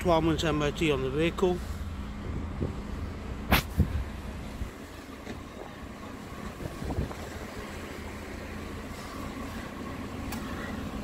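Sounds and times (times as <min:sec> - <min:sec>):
car engine idling: 0:00.0 - 0:11.0
wind rumbling on microphone: 0:02.2 - 0:04.8, 0:06.4 - 0:07.9.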